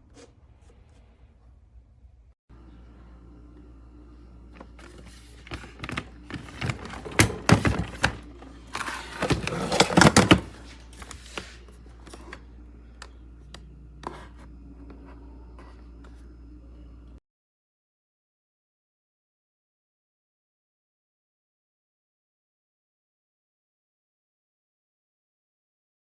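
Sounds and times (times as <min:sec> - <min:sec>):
steady low hum: 0:00.0 - 0:17.2
hard objects clicking and knocking: 0:05.5 - 0:10.6.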